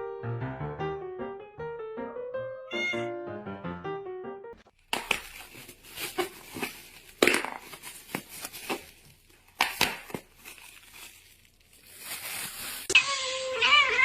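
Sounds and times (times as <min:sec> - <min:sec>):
crinkling and rustling: 0:04.6 - 0:13.0.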